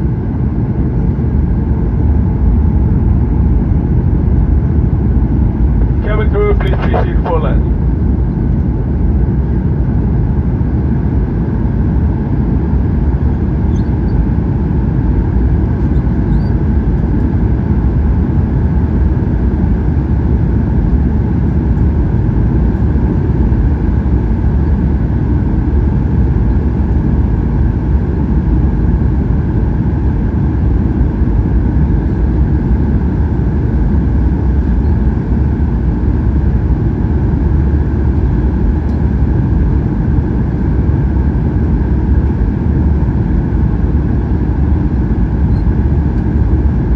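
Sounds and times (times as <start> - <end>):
jet engines droning: 0.0 - 46.9.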